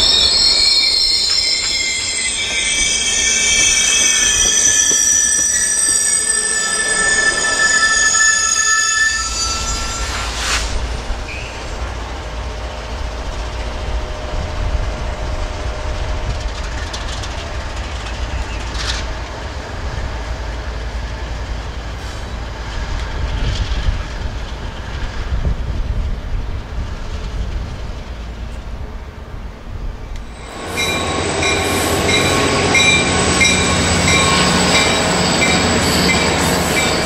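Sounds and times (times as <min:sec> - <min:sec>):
train rumble: 0:00.0 - 0:08.2, 0:09.2 - 0:37.0
train wheel squeal: 0:00.0 - 0:12.0, 0:16.3 - 0:19.1, 0:30.1 - 0:37.0.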